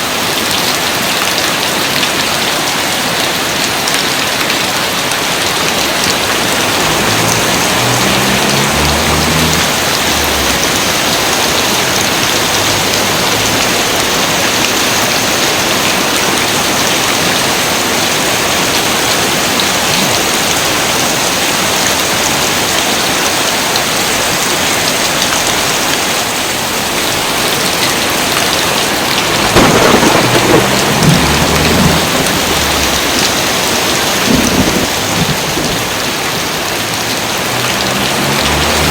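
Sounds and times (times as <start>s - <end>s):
heavy rain: 0.0s - 38.9s
thunder rumbling: 5.6s - 15.0s, 28.7s - 36.2s.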